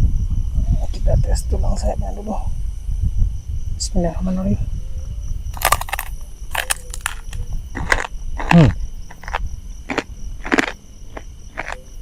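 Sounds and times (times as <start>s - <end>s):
crickets chirping: 0.0s - 12.0s
crunchy chewing: 5.5s - 12.0s.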